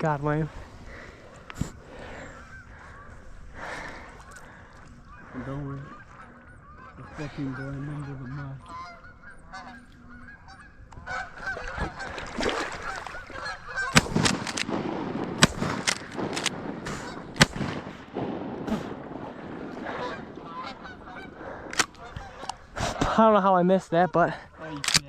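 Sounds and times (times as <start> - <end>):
geese honking: 1.8 - 14.8, 15.5 - 18.2, 18.8 - 25.0
loud shotgun shots: 13.8 - 22.5.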